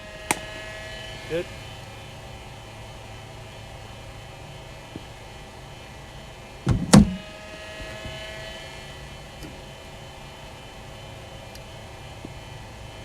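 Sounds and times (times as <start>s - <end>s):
bowling machine motor hum: 0.0s - 13.0s
cricket bat hitting ball: 0.2s - 0.8s.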